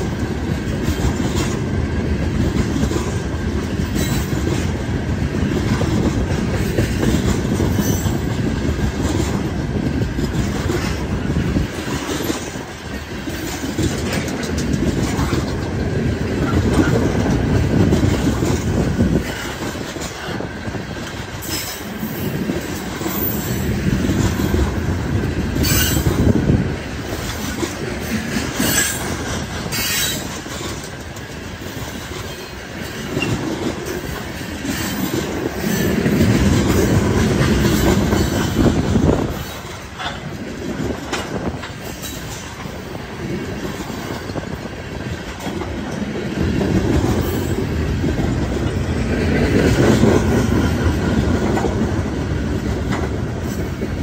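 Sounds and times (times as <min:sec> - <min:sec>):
freight train wheels rumbling on rails: 0:00.0 - 0:54.0.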